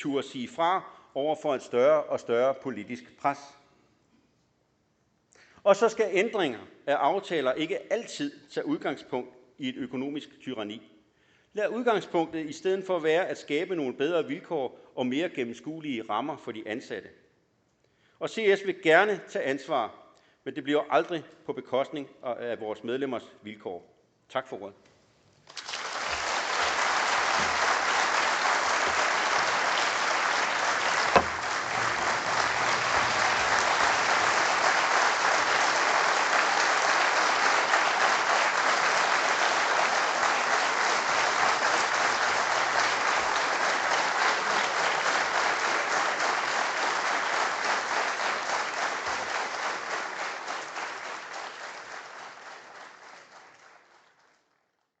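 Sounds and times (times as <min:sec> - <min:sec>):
audience applauding: 0:25.5 - 0:54.5
sharp knock: 0:31.1 - 0:32.0.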